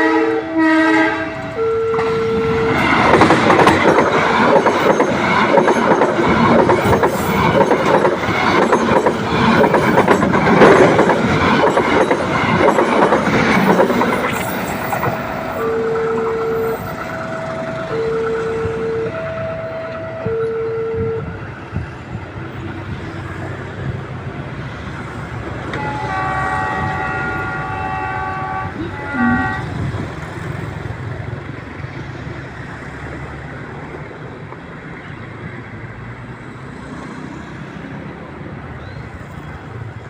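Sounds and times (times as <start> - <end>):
locomotive chord horn: 0.0 - 3.0, 14.8 - 21.4, 25.7 - 30.0
train rumbling past: 0.0 - 40.0
two-tone warning signal: 1.4 - 3.2, 13.7 - 21.4, 25.8 - 29.8.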